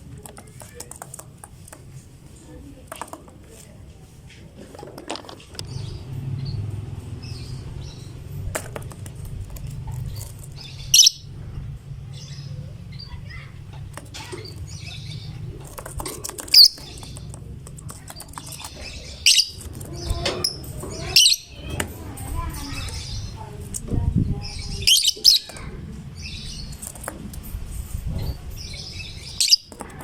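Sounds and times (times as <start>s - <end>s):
lovebird chirping: 10.1s - 11.4s, 16.5s - 17.2s, 18.2s - 21.7s, 24.4s - 25.6s, 28.2s - 29.7s
shrill bird calls: 10.9s - 11.3s.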